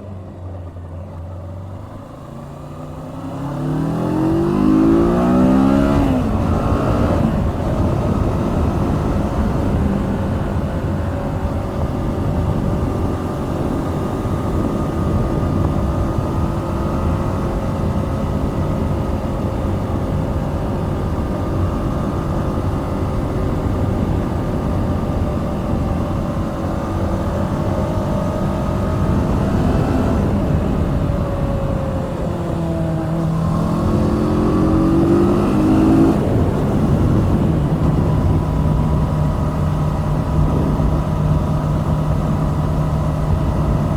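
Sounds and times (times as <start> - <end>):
motorcycle engine riding: 0.0 - 43.9
wind rushing: 28.1 - 43.9.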